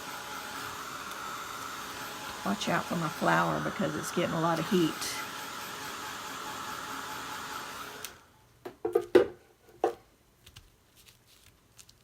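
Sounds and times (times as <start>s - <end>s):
heat gun blowing air: 0.0s - 8.3s.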